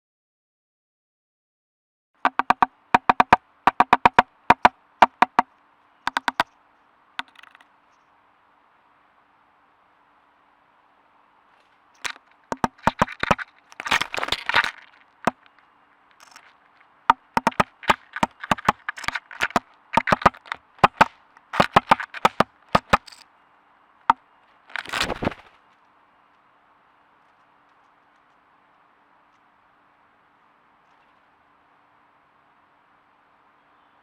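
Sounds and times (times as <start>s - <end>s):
woodpecker knocking on plastic casing: 2.3s - 5.5s, 6.1s - 6.6s, 7.2s - 7.7s, 12.0s - 23.2s.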